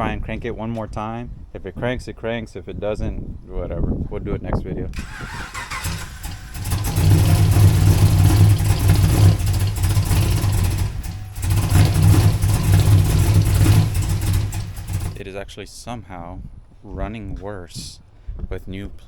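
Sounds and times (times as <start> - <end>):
car engine cranking and starting: 5.0 - 15.2
engine running with a misfire: 5.0 - 15.2.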